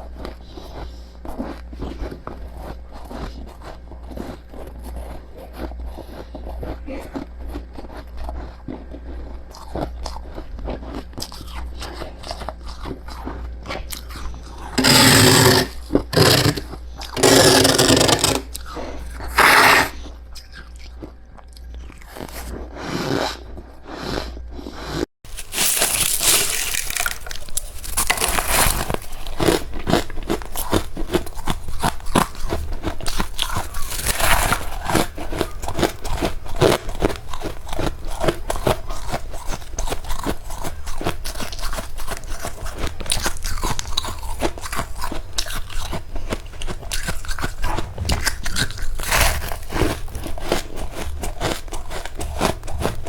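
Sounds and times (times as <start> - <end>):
crunching and chewing frost: 0.0 - 53.0.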